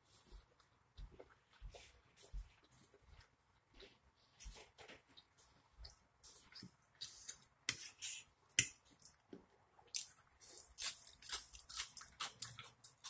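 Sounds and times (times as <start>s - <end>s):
chewing with wet mouth smacks: 9.9s - 13.0s.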